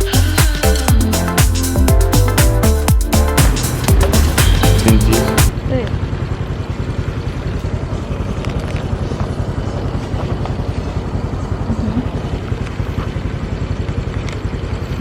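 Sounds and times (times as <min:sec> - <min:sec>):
scooter engine running: 0:00.0 - 0:15.0
road and wind noise: 0:03.4 - 0:15.0.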